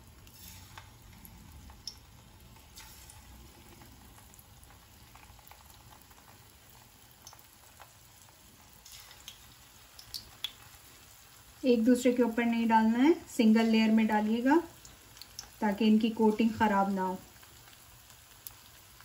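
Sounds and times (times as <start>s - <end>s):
chicken frying in oil: 0.0s - 19.0s.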